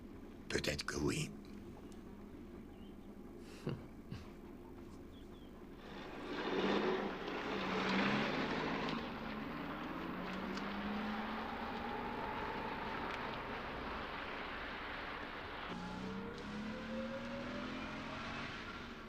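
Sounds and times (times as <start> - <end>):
car engine accelerating: 5.8 - 19.0.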